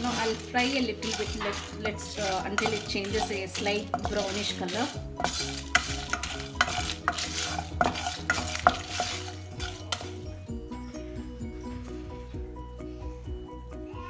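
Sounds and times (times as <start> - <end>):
spatula scraping spices in a pan: 0.0 - 10.3
background music: 0.0 - 14.0.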